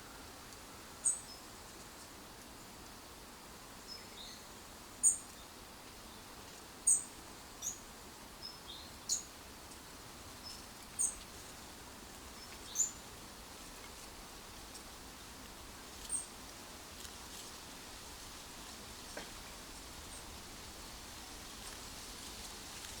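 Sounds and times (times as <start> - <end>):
faint outdoor hiss: 0.0 - 23.0
small birds chirping: 12.3 - 13.0.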